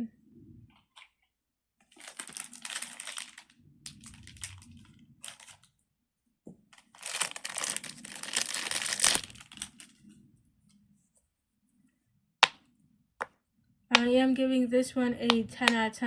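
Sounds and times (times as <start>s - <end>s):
packaging crinkling: 1.9s - 5.7s, 6.8s - 10.0s.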